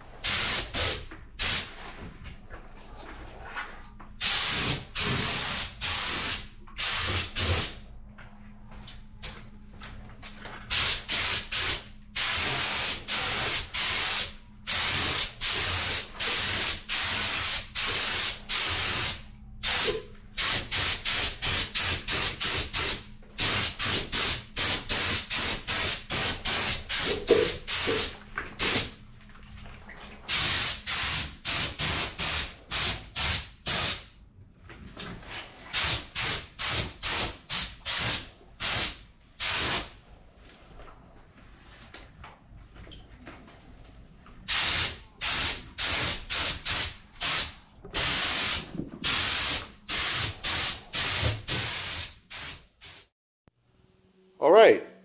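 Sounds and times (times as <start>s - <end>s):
paint spraying in hissing bursts: 0.2s - 1.7s, 4.2s - 7.8s, 10.7s - 29.0s, 30.3s - 34.0s, 35.7s - 39.9s, 44.5s - 53.1s.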